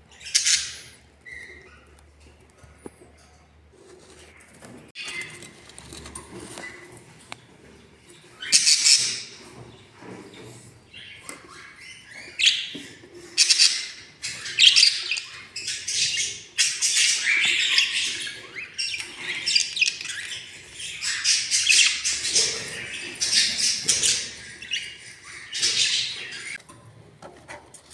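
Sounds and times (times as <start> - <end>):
budgerigars chirping and squawking: 0.1 - 2.3, 4.2 - 26.6.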